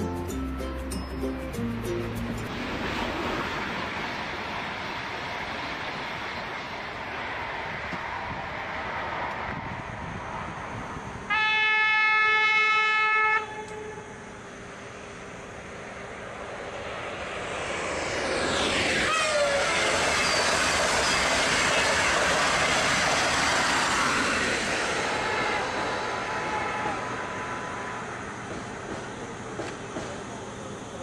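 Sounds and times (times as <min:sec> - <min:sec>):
train rushing past: 0:00.0 - 0:31.0
train horn: 0:11.3 - 0:14.4, 0:19.1 - 0:19.7
whining tone falling in pitch: 0:16.3 - 0:21.6.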